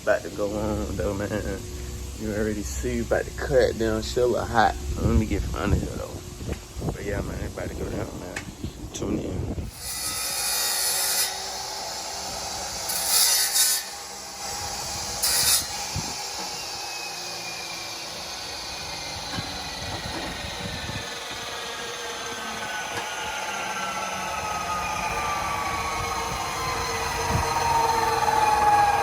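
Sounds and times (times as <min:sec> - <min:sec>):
faint falling whine: 0:00.0 - 0:29.0
power saw grinding metal pipe: 0:00.4 - 0:08.4, 0:09.6 - 0:29.0
saw hissing bursts: 0:09.6 - 0:29.0.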